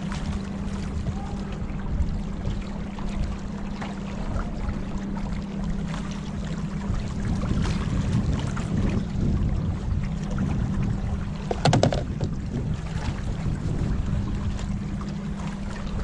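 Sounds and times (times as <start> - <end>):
low rumble: 0.0 - 16.0
water splashing against boat: 0.0 - 16.0.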